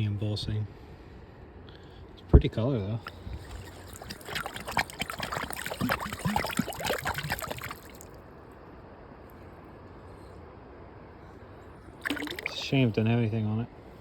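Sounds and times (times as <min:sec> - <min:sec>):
faint steady background: 0:00.0 - 0:14.0
glass bottle handled in water: 0:03.0 - 0:08.1, 0:12.0 - 0:12.7
creek water splashing and trickling: 0:03.0 - 0:08.2, 0:12.0 - 0:12.9.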